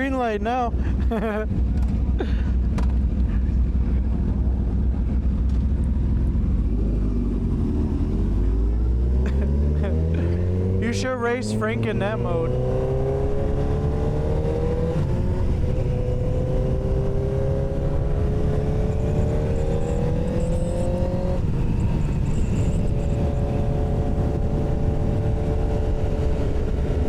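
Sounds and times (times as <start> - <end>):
motorcycle engine accelerating: 0.8 - 27.0
wind rumble on microphone: 12.5 - 27.0.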